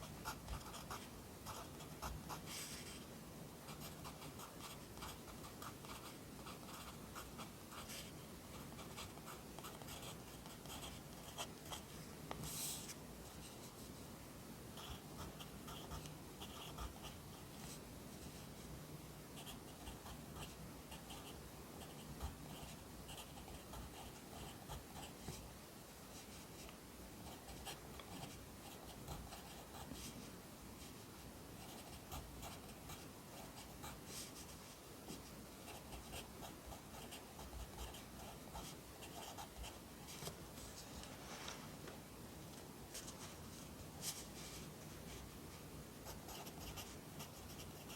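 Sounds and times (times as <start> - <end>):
pencil scratching on paper: 0.2 - 3.0, 3.7 - 13.8, 14.8 - 17.2, 35.7 - 39.8, 46.1 - 47.9.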